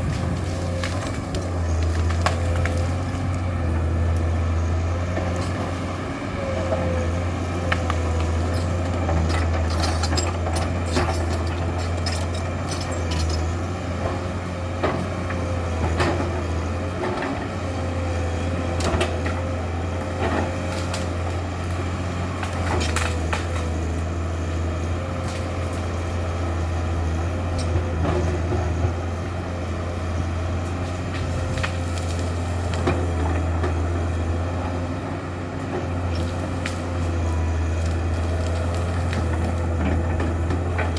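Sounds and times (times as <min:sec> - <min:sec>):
excavator diesel engine running: 0:00.0 - 0:40.9
sharp knocks and cracks: 0:22.3 - 0:23.8.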